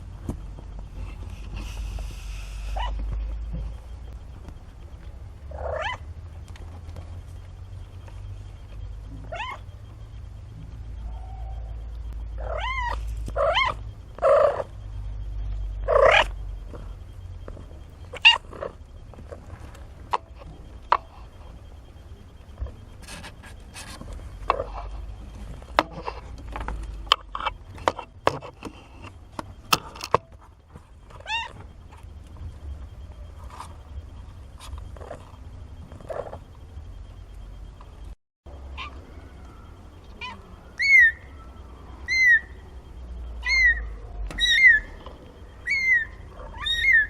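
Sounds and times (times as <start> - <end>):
kittens mewing: 2.4 - 3.1, 5.5 - 6.1, 9.2 - 9.7, 12.4 - 14.8, 15.8 - 16.4, 18.1 - 19.4, 38.7 - 42.6, 43.4 - 45.0, 45.6 - 47.0.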